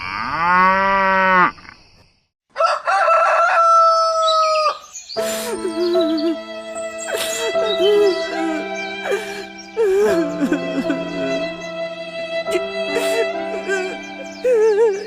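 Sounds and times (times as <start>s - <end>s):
cow mooing: 0.0s - 1.6s
rooster crowing: 2.5s - 4.8s
music: 5.2s - 15.0s.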